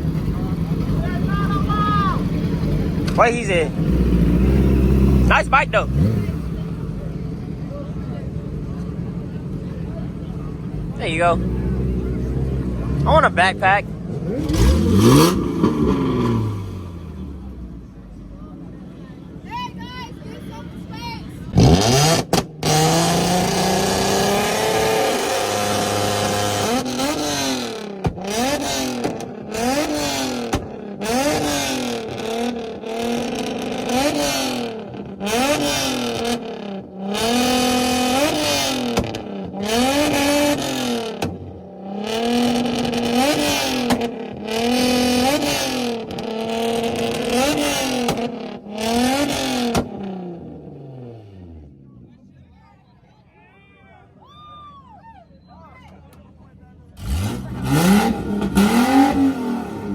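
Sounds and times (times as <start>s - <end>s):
car engine revving: 0.0s - 52.4s, 56.7s - 59.9s.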